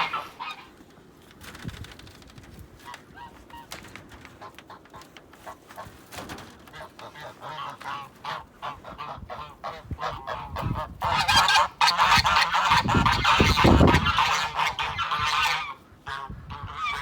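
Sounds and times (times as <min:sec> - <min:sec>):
geese honking: 0:00.0 - 0:00.8, 0:06.7 - 0:17.0.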